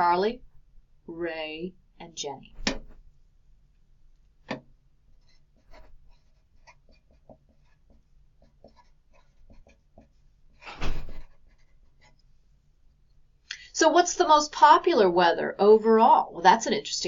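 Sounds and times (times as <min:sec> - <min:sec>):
pen writing on paper: 0:05.2 - 0:10.6, 0:11.3 - 0:12.2
thump: 0:10.7 - 0:11.3.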